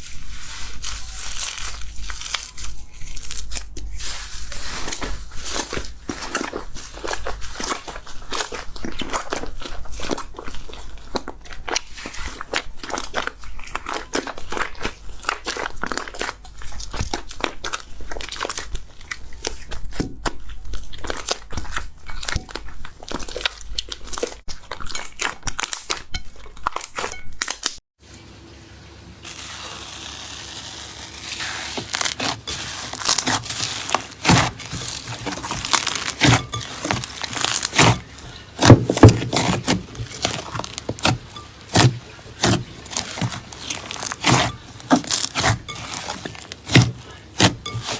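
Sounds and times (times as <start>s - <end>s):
slime squeezed by hand: 29.3s - 47.9s.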